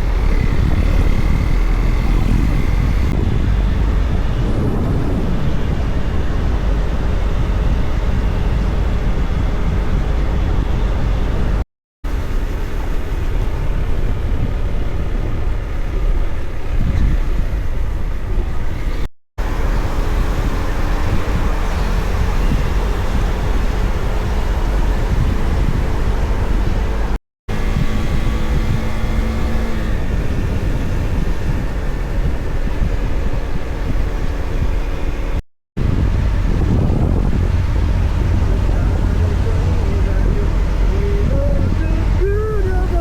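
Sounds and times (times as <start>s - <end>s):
motorcycle engine running: 0.0s - 7.6s
wind rush: 0.0s - 43.0s.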